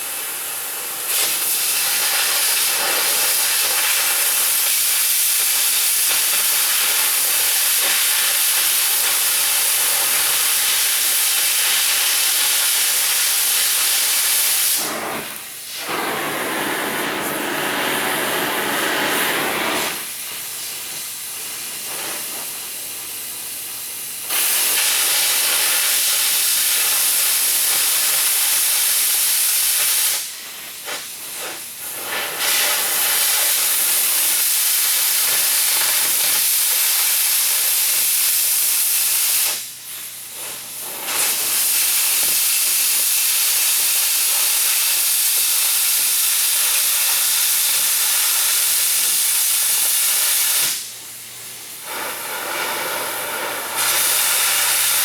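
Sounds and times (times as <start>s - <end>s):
gas cutting torch hissing: 0.0s - 55.0s.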